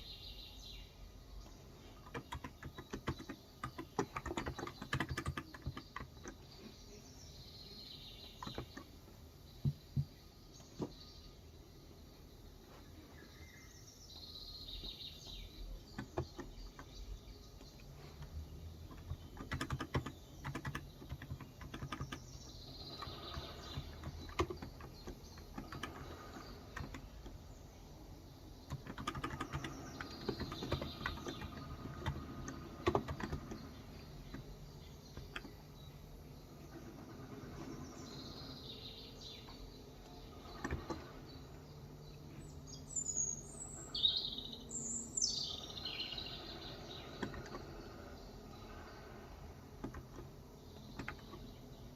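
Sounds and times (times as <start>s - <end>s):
small birds chirping: 0.0s - 51.9s
keyboard typing: 1.8s - 6.7s, 8.4s - 9.0s, 15.6s - 27.5s, 28.6s - 35.9s, 39.4s - 41.5s, 46.1s - 51.9s.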